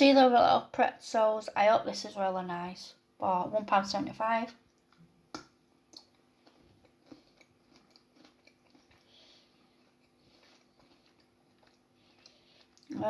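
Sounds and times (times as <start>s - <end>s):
chewing chocolate: 4.7s - 13.0s.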